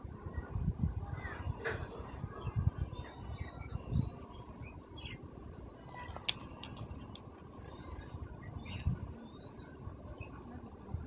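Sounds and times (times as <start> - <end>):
small birds chirping: 2.5 - 10.4.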